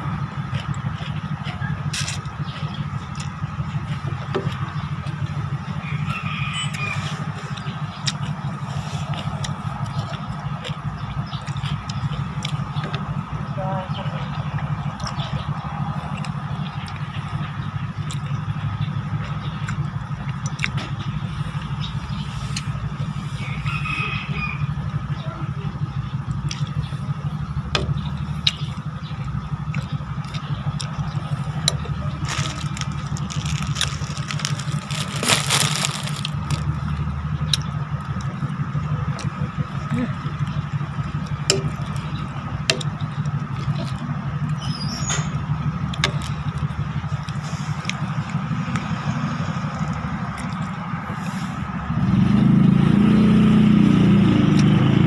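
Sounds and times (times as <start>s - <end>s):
sharp clicks and taps: 41.2s - 42.1s.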